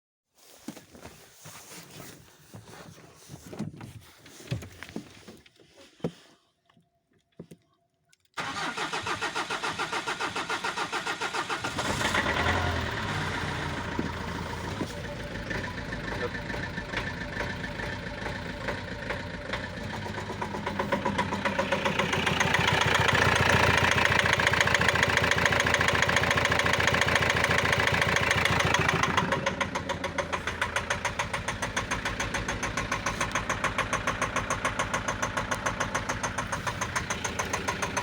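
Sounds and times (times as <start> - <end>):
diesel engine knocking and revving: 11.3 - 38.0.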